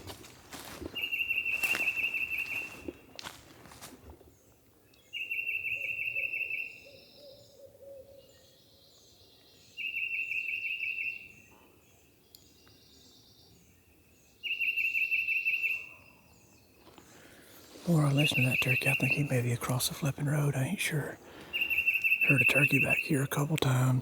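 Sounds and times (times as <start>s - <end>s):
songbird high trill: 1.0s - 2.8s, 20.9s - 24.0s
distant turkey gobble: 21.3s - 23.2s.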